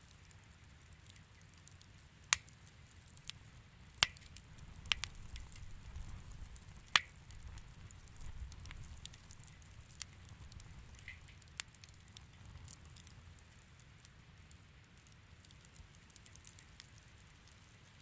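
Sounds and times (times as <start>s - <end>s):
wood fire crackling: 0.0s - 18.0s
burning wood snapping: 0.9s - 2.6s, 4.0s - 13.8s, 15.4s - 17.6s.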